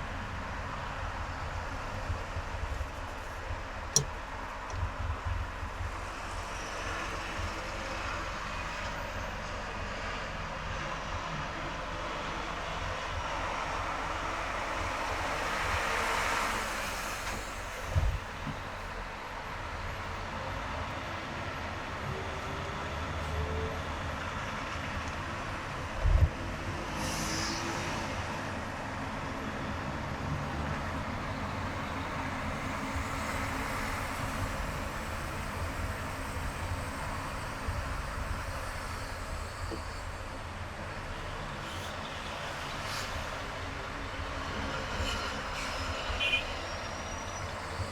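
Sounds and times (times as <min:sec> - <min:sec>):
car road noise on highway: 0:00.0 - 0:47.9.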